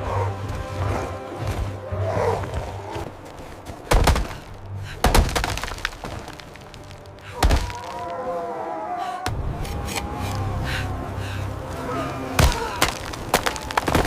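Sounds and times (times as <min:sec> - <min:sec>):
low music drone: 0:00.0 - 0:13.8
loud cracking impacts: 0:03.9 - 0:08.0, 0:12.4 - 0:14.0.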